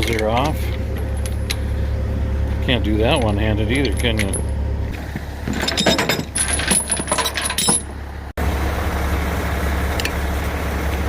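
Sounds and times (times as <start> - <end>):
small metal parts clinking: 0.0 - 1.8, 3.0 - 4.6, 5.5 - 8.0
diesel truck engine idling: 0.0 - 5.5, 7.8 - 11.0.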